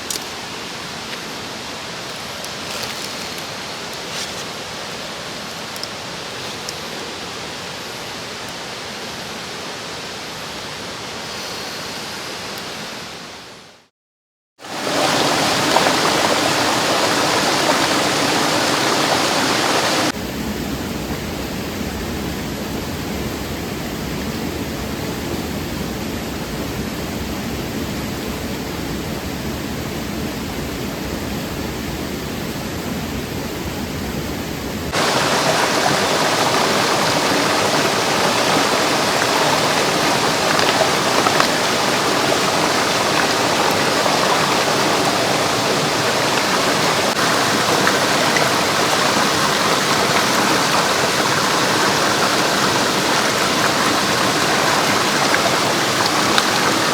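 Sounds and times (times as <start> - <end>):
stream rushing: 0.0 - 13.6, 14.6 - 20.2, 34.9 - 56.9.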